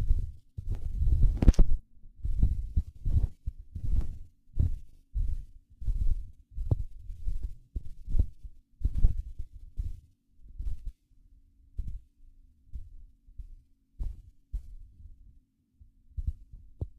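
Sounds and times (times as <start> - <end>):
walking footsteps muffled thuds: 0.0 - 11.0, 11.8 - 12.1, 12.7 - 14.8.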